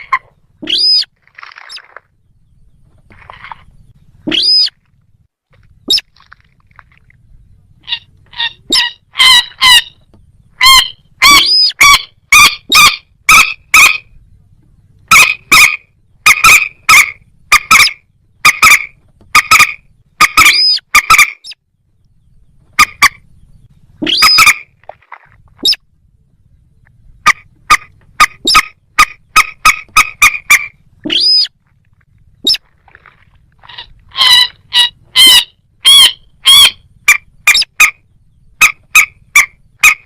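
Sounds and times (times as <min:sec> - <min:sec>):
rail bird harsh calls: 0:07.8 - 0:14.2, 0:15.1 - 0:21.6, 0:22.7 - 0:25.0, 0:27.2 - 0:31.6, 0:32.4 - 0:40.0.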